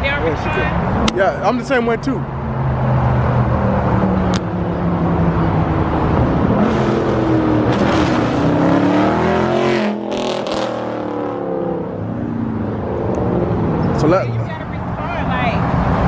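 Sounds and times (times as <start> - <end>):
car engine accelerating: 2.1 - 14.7.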